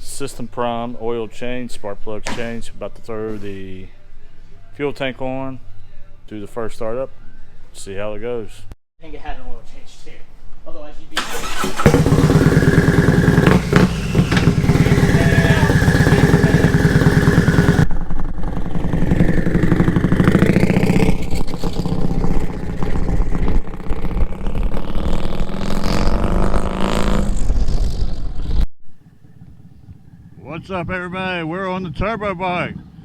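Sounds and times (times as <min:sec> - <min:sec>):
motorcycle engine revving: 0:11.2 - 0:28.6.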